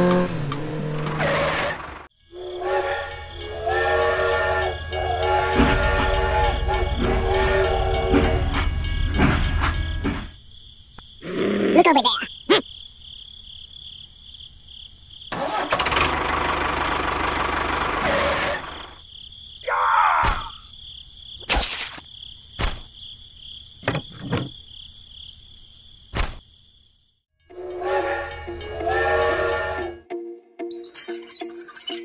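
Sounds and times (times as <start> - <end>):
insect chirring: 19.0 - 27.2.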